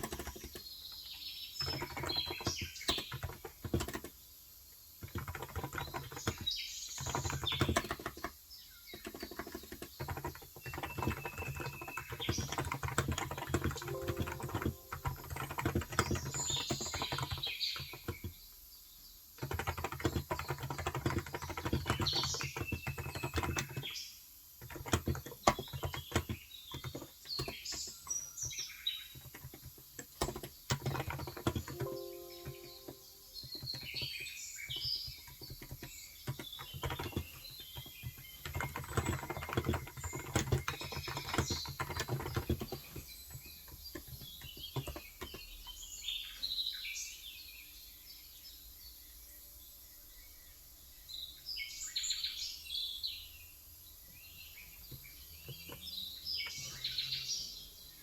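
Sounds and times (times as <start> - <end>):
rapid keyboard typing: 0.0 - 18.6, 19.3 - 24.0, 24.6 - 45.9
birds chirping: 54.0 - 58.0.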